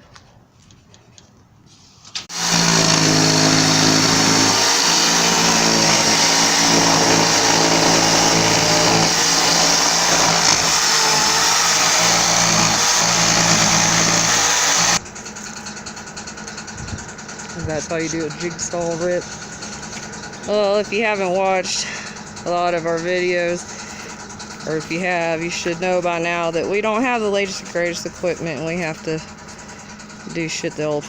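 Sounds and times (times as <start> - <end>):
electric jigsaw cutting wood: 2.2 - 21.1.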